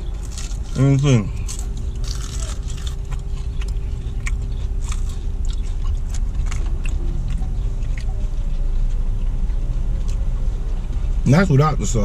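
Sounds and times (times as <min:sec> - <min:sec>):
crunching fried chicken: 0:00.0 - 0:08.5
steady low hum: 0:00.0 - 0:12.0.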